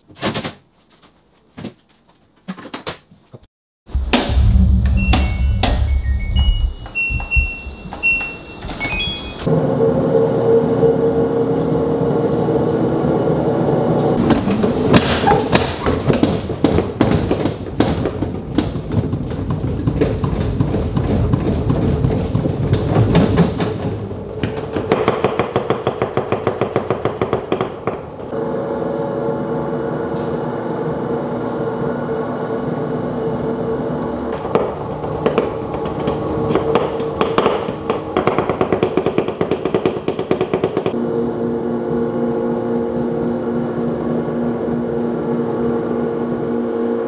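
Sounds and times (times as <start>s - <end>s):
fast regular thumping: 3.9s - 8.0s, 14.2s - 28.3s
washing machine motor hum: 3.9s - 26.4s, 27.5s - 40.2s, 40.8s - 47.0s
washing machine knocks and rattles: 4.0s - 9.4s, 14.2s - 28.0s, 34.3s - 41.0s.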